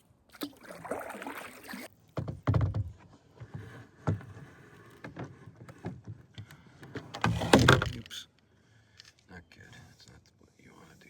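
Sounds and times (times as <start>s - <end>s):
water splashing around kayak: 0.0s - 2.0s.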